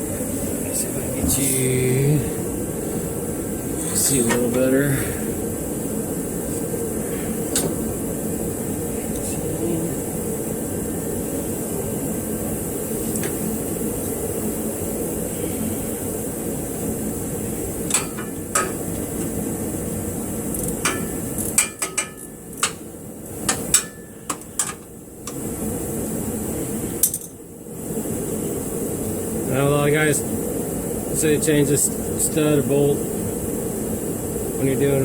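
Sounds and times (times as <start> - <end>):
steady fan-like hum: 0.0 - 35.0
hand tools clinking on metal: 17.9 - 18.9, 20.6 - 22.8.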